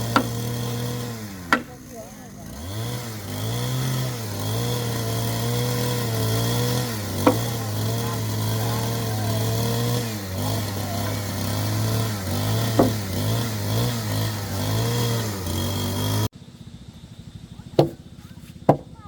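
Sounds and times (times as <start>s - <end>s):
sharp knocks: 0.0s - 0.7s, 1.4s - 1.7s, 6.6s - 9.0s, 11.8s - 13.5s, 17.8s - 18.0s, 18.7s - 19.0s
power tool motor on wood: 0.0s - 16.3s.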